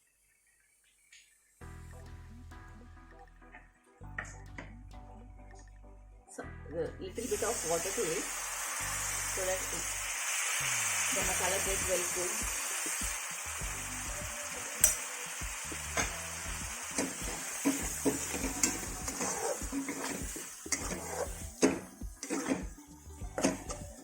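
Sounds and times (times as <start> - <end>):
food sizzling in oil: 7.2 - 24.0
metal spoon scraping a pan: 16.8 - 24.0.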